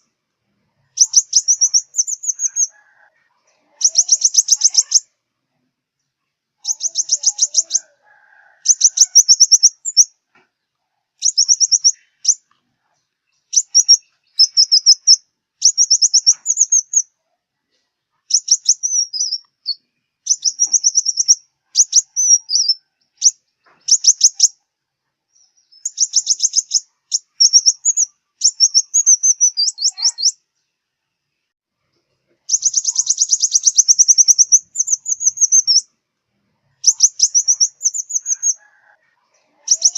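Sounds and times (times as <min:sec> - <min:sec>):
sunbird trilling song: 0:00.9 - 0:02.8, 0:03.8 - 0:05.2, 0:06.6 - 0:07.9, 0:08.6 - 0:10.2, 0:11.2 - 0:12.5, 0:13.3 - 0:17.1, 0:18.3 - 0:24.6, 0:25.3 - 0:30.4, 0:32.5 - 0:35.9, 0:36.8 - 0:38.7, 0:39.6 - 0:39.9.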